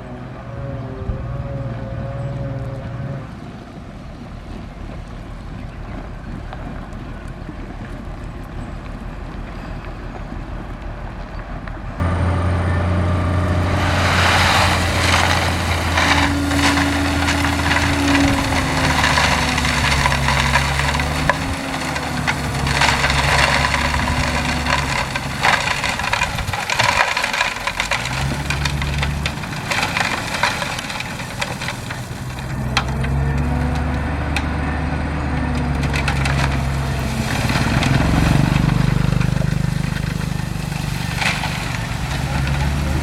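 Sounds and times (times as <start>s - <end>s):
bulldozer diesel engine: 0.0s - 43.0s
stones crunching and crackling: 13.6s - 43.0s.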